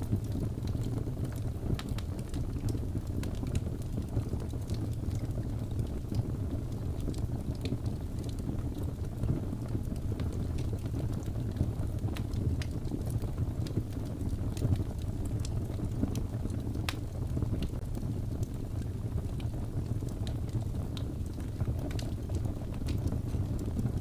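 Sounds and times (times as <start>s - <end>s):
fire crackles and pops: 0.0s - 24.0s
wood fire rumbling: 0.0s - 24.0s.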